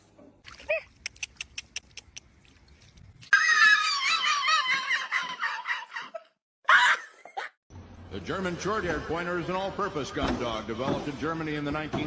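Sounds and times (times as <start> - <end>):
dog screaming cry: 3.3 - 6.1.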